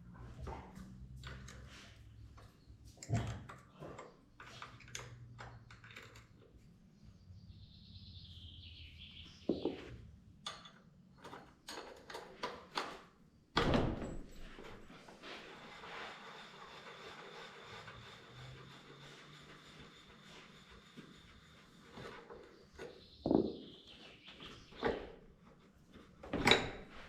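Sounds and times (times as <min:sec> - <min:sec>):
tools and parts clicking and knocking: 0:01.1 - 0:06.7, 0:09.5 - 0:13.2, 0:24.8 - 0:27.0.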